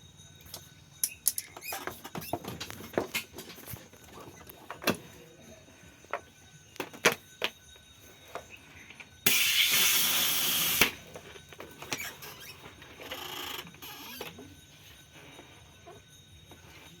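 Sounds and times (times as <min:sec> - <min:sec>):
pressurised air hissing: 0:09.3 - 0:11.0.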